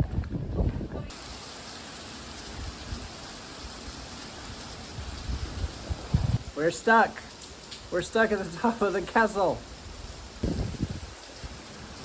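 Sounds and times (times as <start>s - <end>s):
rain falling steadily: 1.0s - 12.0s
thunder rumbles: 10.4s - 11.7s.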